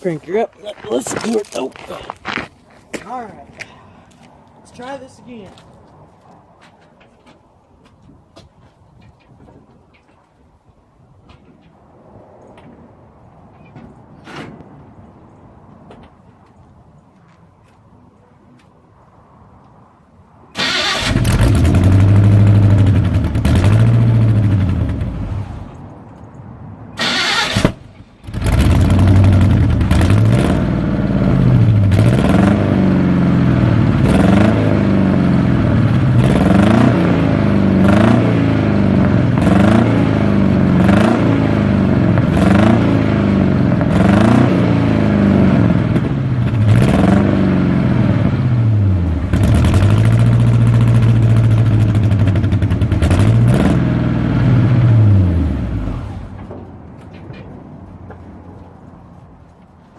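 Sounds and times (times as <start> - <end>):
man talking: 0.0 - 2.2, 4.6 - 5.6
truck engine revving: 20.6 - 25.7, 27.0 - 56.4.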